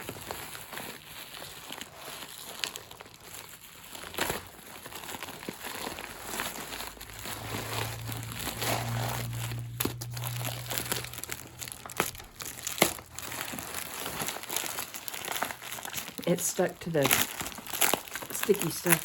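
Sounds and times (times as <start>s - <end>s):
plastic wrap crinkling: 0.0s - 19.0s
plastic wrap snapping: 0.0s - 19.0s
low hum: 6.8s - 14.1s.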